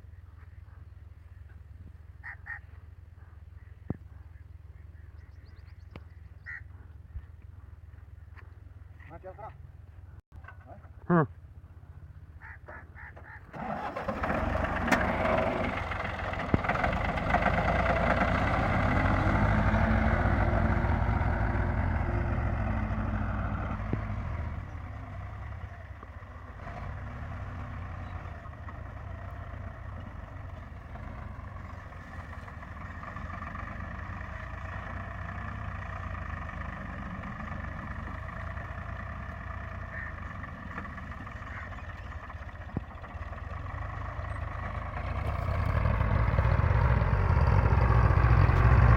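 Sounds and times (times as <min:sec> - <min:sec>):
tractor engine running: 0:11.6 - 0:48.9.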